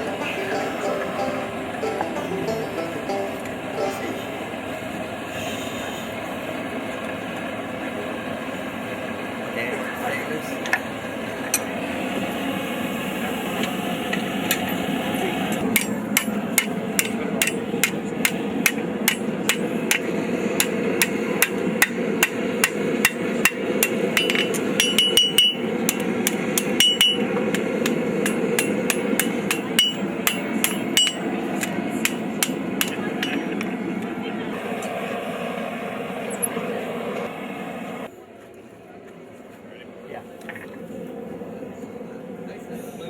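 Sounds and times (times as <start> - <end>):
anvil ringing: 0.0 - 4.7, 15.7 - 33.4
steady whooshing hum: 0.0 - 43.0
hammer striking on anvil: 15.6 - 33.5.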